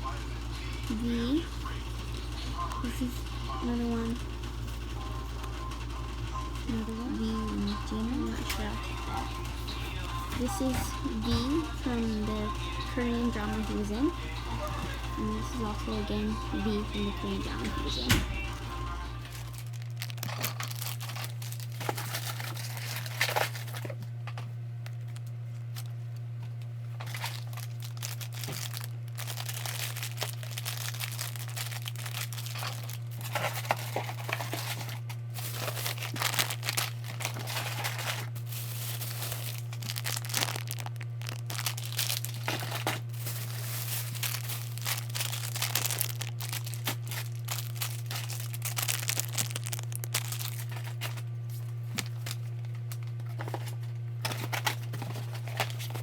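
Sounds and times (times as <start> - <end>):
steady low hum: 0.0 - 56.0
packaging crinkling and tearing: 19.1 - 24.1, 24.8 - 56.0.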